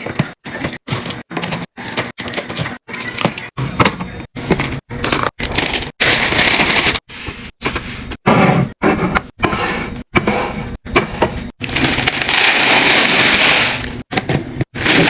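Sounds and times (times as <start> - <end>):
packaging and containers handled: 4.4 - 7.8, 11.6 - 15.0.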